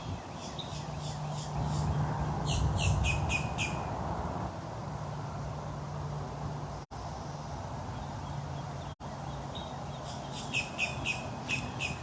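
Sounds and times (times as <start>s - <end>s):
bird chirping: 0.0s - 3.9s, 8.0s - 12.0s.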